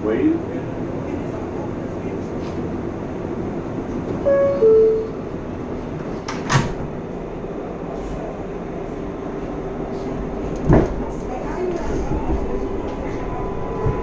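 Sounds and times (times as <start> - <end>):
train car rumble: 0.0 - 14.0
two-tone door chime: 4.2 - 5.2.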